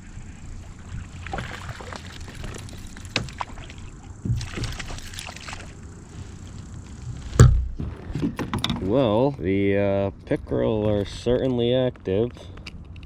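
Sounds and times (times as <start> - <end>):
water sloshing beside a kayak: 0.0 - 8.9.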